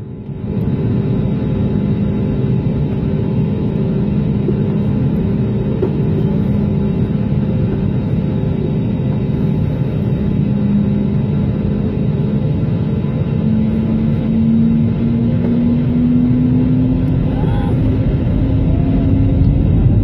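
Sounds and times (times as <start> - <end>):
aircraft cabin engine rumble: 0.0 - 20.0.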